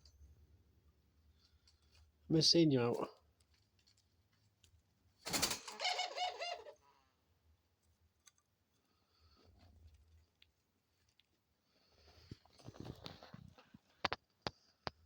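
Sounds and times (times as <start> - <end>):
dove calling harshly: 5.3 - 6.8
dove cooing: 5.5 - 6.8.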